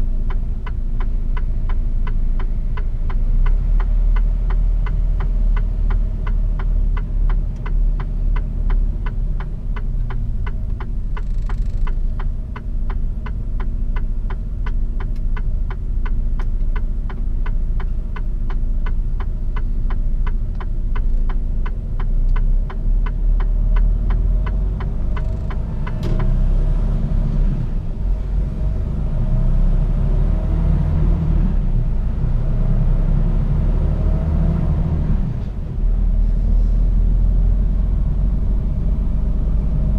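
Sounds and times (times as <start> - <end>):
turn indicator ticking: 0.0 - 36.1
truck engine rumbling: 0.0 - 39.9
sharp click: 19.2 - 26.4.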